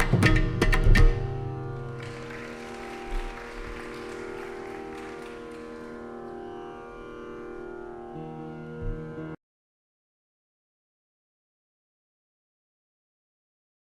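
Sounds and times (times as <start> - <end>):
veena strings ringing: 0.0 - 9.4.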